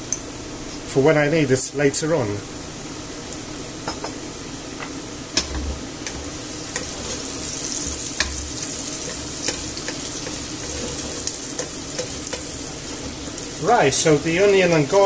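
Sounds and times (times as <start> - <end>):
onion and garlic sizzling in oil: 5.0 - 15.0.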